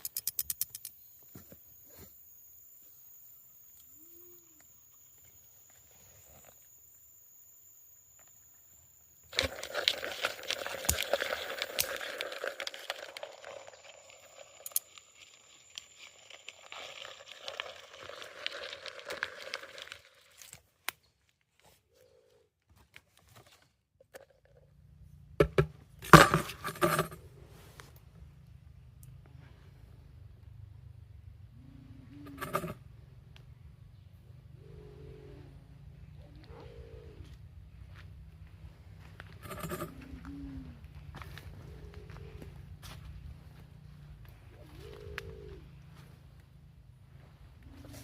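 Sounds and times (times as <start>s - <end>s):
crinkling crackling rustle: 9.3s - 21.7s.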